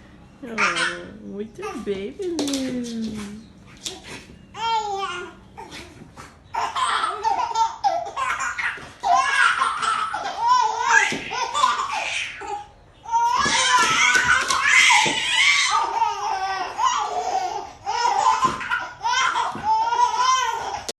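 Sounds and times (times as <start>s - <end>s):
baby laughing: 6.5s - 20.9s.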